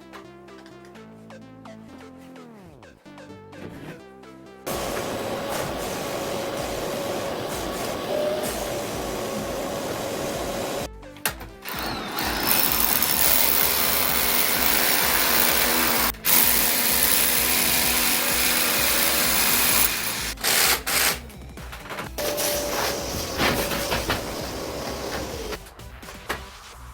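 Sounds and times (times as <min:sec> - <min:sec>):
power drill running: 0:04.7 - 0:10.9, 0:11.7 - 0:21.2, 0:22.2 - 0:25.6.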